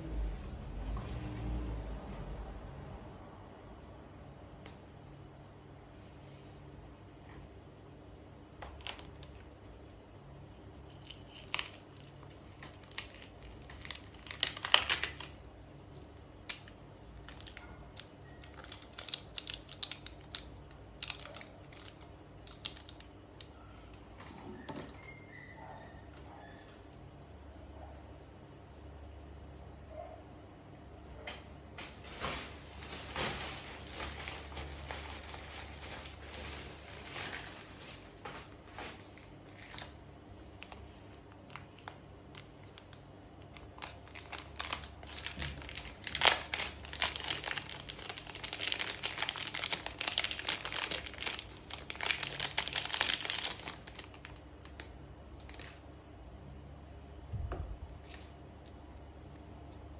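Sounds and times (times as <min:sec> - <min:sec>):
plastic film crinkling: 0:13.0 - 0:15.4, 0:16.5 - 0:23.0, 0:32.0 - 0:55.8.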